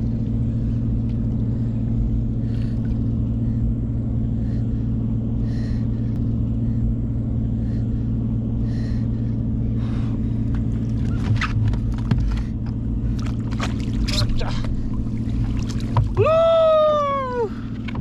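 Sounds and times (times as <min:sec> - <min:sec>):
outboard motor humming: 0:00.0 - 0:18.0
water splashes: 0:10.7 - 0:16.5.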